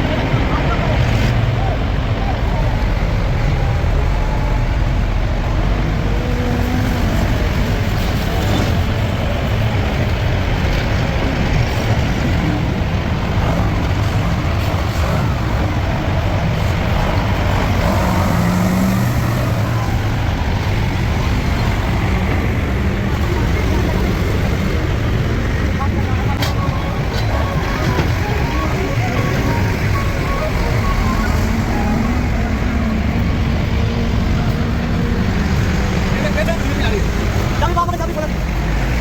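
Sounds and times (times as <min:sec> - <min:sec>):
heavy vehicle engine running: 0:00.0 - 0:39.0.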